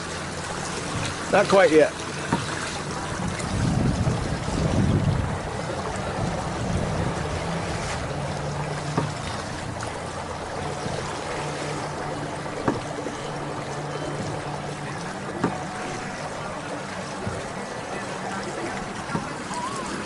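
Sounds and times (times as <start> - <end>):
water rushing along hulls: 0.0 - 20.0
low hum: 2.0 - 20.0
gusty wind: 2.8 - 13.7
sharp knocks: 12.6 - 12.9.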